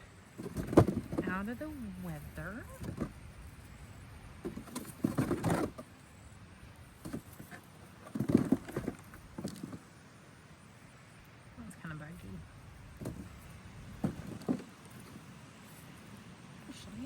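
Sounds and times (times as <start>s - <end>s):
sweet potatoes rustling and knocking: 0.2s - 3.6s, 4.3s - 5.9s, 6.8s - 10.0s, 12.8s - 15.3s.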